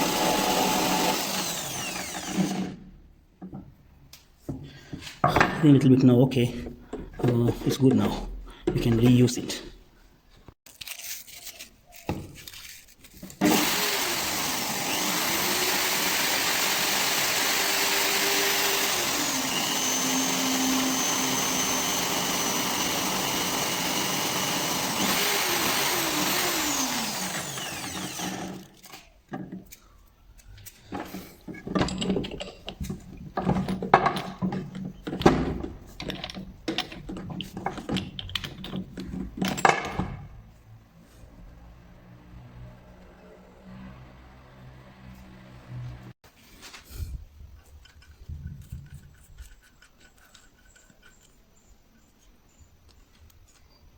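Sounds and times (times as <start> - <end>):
electric drill running: 0.0 - 2.8, 13.4 - 28.8
metal parts clicking and knocking: 28.6 - 40.2, 47.6 - 51.4.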